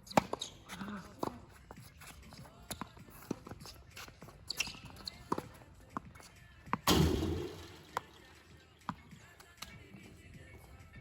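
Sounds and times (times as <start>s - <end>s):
tennis ball hits and bounces: 0.1s - 0.5s, 2.4s - 9.1s.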